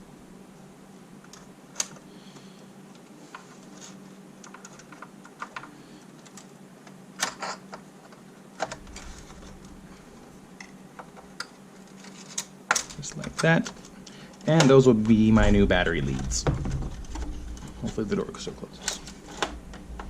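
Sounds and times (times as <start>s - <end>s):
plastic clatters: 3.0s - 9.8s.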